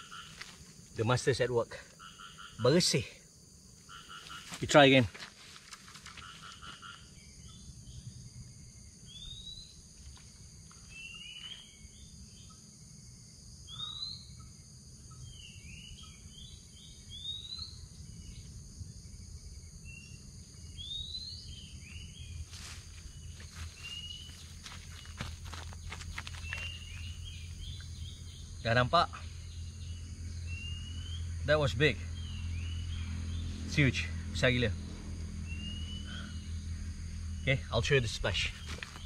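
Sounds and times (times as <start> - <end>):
high insect drone: 0.0 - 39.0
rustling footsteps: 4.2 - 6.9, 22.4 - 27.2, 38.4 - 39.0
birds whistled chirps: 13.7 - 14.5, 15.1 - 18.5, 26.3 - 28.6, 29.4 - 31.3, 35.5 - 36.6.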